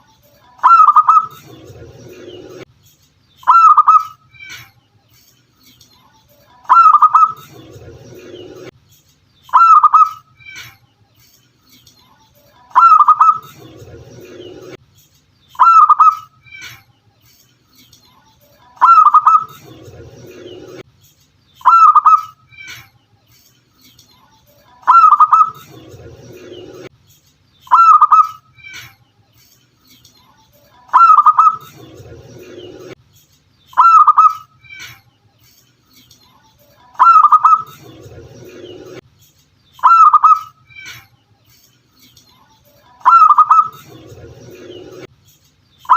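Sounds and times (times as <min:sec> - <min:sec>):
dove cooing: 0:00.6 - 0:01.4, 0:06.7 - 0:07.4, 0:12.8 - 0:13.5, 0:18.8 - 0:19.6, 0:24.8 - 0:25.6, 0:30.9 - 0:31.7, 0:37.0 - 0:37.8, 0:39.8 - 0:40.5, 0:43.0 - 0:43.8.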